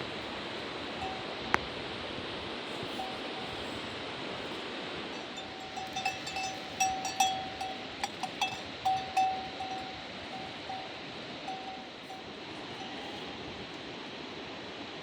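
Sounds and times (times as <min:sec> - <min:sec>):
metal bell clanking: 0:01.0 - 0:01.4, 0:02.8 - 0:03.9, 0:05.1 - 0:13.1.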